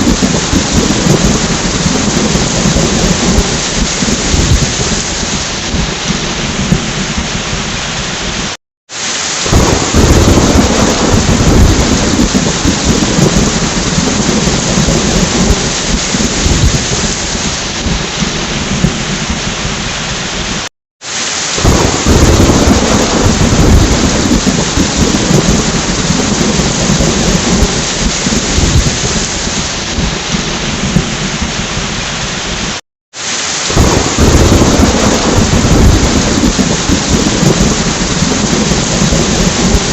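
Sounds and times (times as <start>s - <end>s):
thunder rumbling: 0.0s - 8.6s, 9.4s - 20.7s, 21.6s - 32.7s, 33.6s - 39.9s
heavy rain falling: 0.0s - 39.9s.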